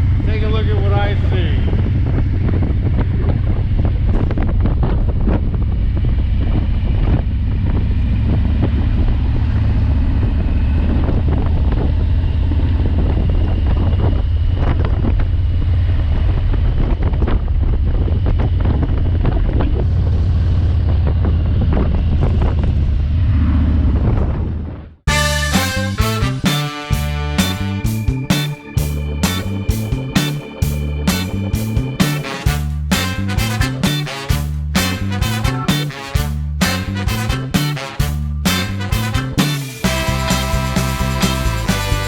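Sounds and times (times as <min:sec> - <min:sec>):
wind buffeting microphone: 0:00.0 - 0:25.0
motorcycle engine cruising drone: 0:00.0 - 0:42.0.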